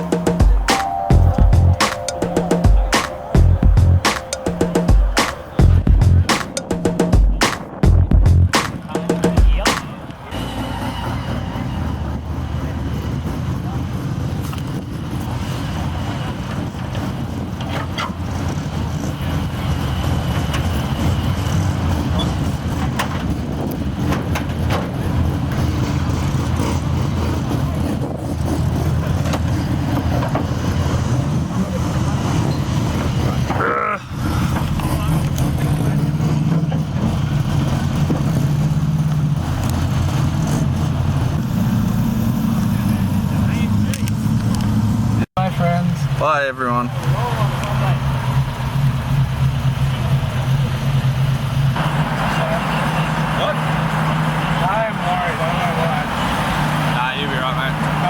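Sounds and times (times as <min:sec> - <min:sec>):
car engine and road noise: 0:02.4 - 0:58.0
car engine running: 0:05.6 - 0:10.2.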